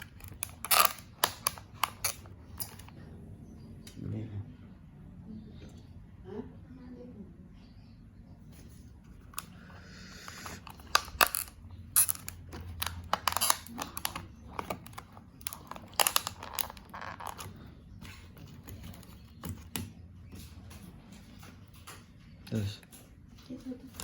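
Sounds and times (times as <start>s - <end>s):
plastic packaging crinkling: 0.0s - 2.9s, 10.3s - 17.6s.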